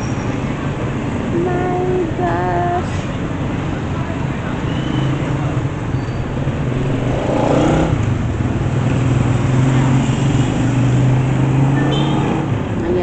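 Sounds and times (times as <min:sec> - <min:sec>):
road noise: 0:00.0 - 0:13.0
vehicle engine running: 0:00.6 - 0:10.8.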